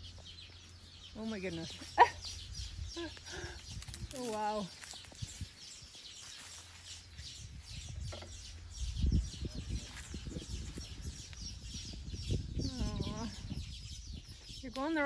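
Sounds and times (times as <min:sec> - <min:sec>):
small birds chirping: 0:00.0 - 0:15.0
low rumble: 0:06.7 - 0:14.8.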